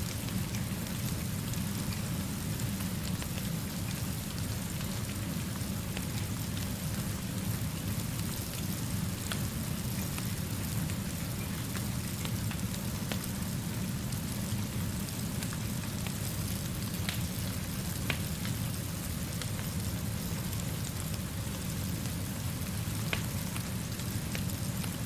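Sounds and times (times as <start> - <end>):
steady rainfall: 0.0 - 25.0
wood fire crackling: 0.0 - 25.0.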